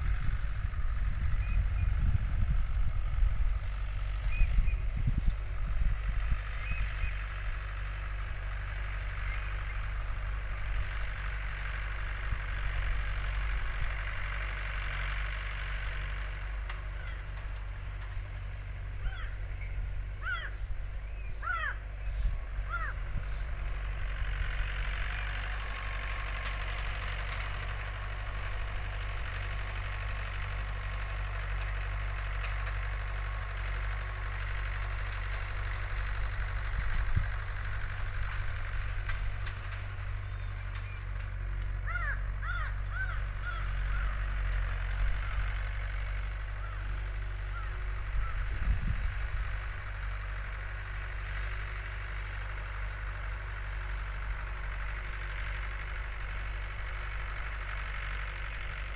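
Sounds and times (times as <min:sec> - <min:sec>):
tractor engine humming: 0:00.0 - 0:58.9
birds calling: 0:01.2 - 0:02.0, 0:03.8 - 0:05.4, 0:06.1 - 0:08.1, 0:15.8 - 0:27.9, 0:38.6 - 0:48.7.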